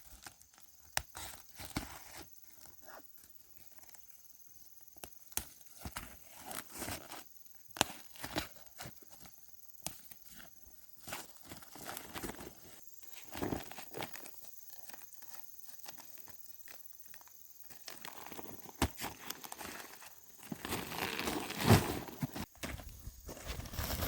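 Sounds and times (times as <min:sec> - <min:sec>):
dry corn plants rustling: 0:05.6 - 0:24.0.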